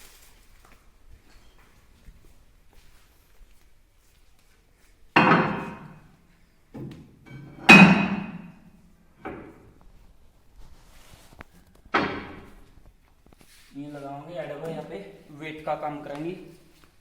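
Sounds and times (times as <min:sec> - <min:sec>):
heavy metal pieces clanking: 0:07.3 - 0:08.6.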